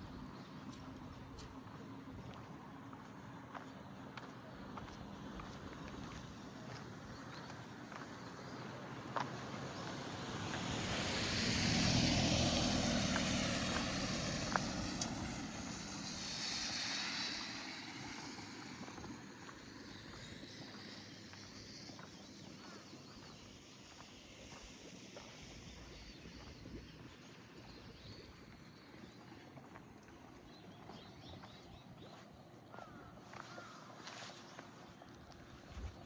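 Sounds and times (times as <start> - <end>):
motor vehicle passing by: 4.8 - 23.6.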